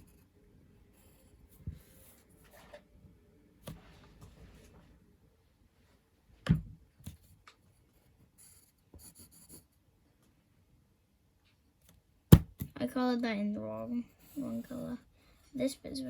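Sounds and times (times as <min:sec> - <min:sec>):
drawing tool scratching on paper: 0:00.9 - 0:02.7, 0:08.0 - 0:09.8
sharp knock on desk: 0:12.3 - 0:12.7.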